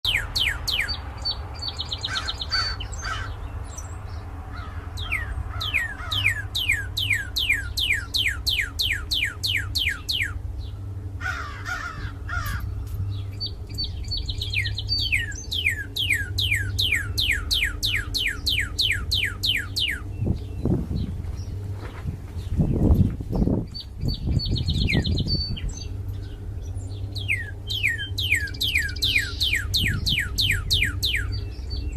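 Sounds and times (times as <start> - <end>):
steady low hum: 0.0 - 31.9
cardinal whistling song: 0.1 - 2.1, 5.0 - 10.4, 13.2 - 20.7, 27.0 - 31.9.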